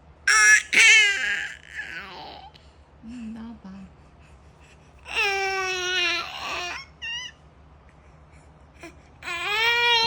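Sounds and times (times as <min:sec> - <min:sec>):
baby crying: 0:00.3 - 0:02.5, 0:05.1 - 0:07.4, 0:09.2 - 0:10.0.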